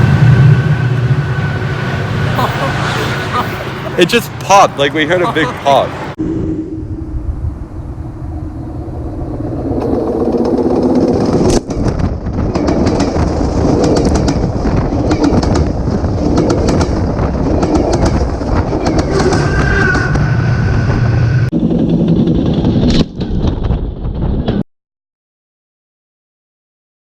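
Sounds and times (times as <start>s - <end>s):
train wheels rumbling on rails: 0.0s - 6.2s, 9.4s - 24.6s
sharp clicks of train wheels: 11.3s - 20.3s.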